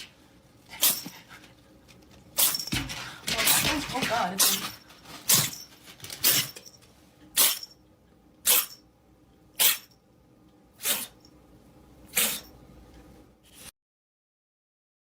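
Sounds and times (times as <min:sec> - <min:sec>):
pet animal sharp noisy bursts: 0:07.4 - 0:07.7, 0:09.6 - 0:09.9, 0:10.8 - 0:11.2, 0:12.1 - 0:12.5.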